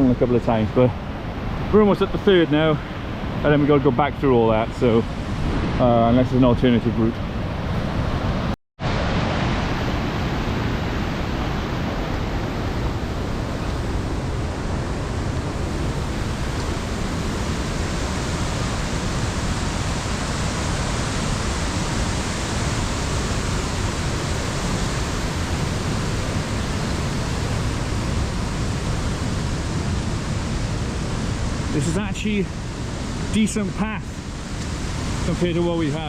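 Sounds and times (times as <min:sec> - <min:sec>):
fast-flowing water rushing: 0:08.0 - 0:36.0.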